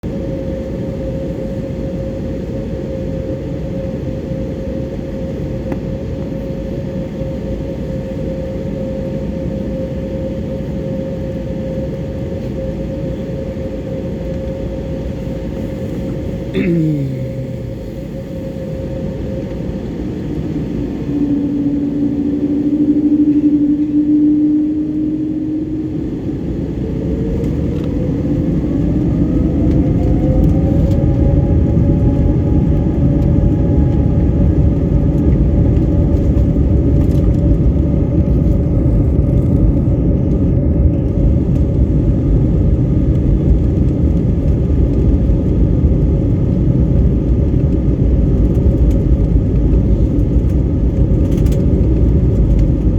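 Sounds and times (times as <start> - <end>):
aircraft rolling rumble: 0.0 - 52.9
jet engines whining: 6.5 - 36.0.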